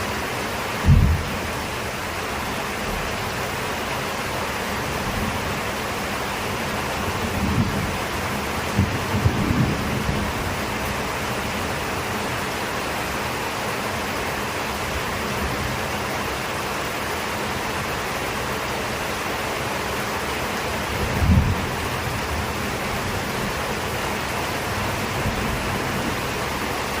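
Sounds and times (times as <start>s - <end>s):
heavy rain: 0.0s - 27.0s
thunder rumble: 0.8s - 1.6s, 7.0s - 11.0s, 20.9s - 23.6s.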